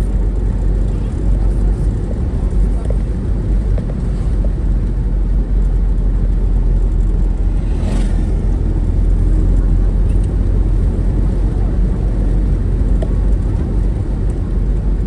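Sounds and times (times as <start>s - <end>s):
road and wind rumble: 0.0s - 15.0s
brief whoosh: 7.5s - 8.7s.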